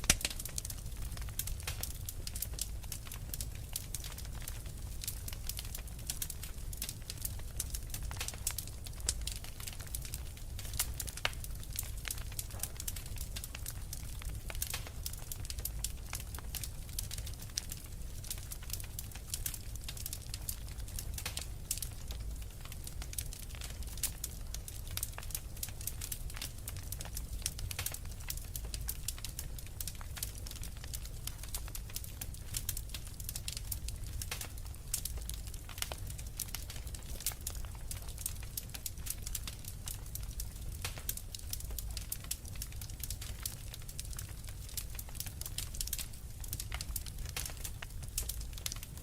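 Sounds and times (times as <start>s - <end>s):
logs crackling in fireplace: 0.0s - 49.0s
low rumble of flames: 0.0s - 49.0s.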